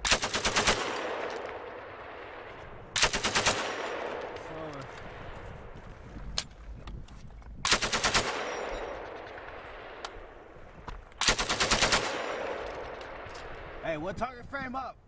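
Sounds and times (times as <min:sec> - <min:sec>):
machine gun bursts: 0:00.0 - 0:01.1, 0:03.0 - 0:03.8, 0:07.7 - 0:08.8, 0:11.2 - 0:12.5
rolling echo: 0:00.7 - 0:06.0, 0:07.8 - 0:13.8.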